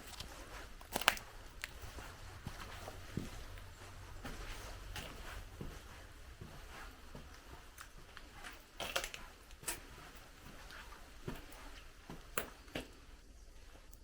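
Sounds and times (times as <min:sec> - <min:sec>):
footsteps on forest trail: 0:00.0 - 0:13.0.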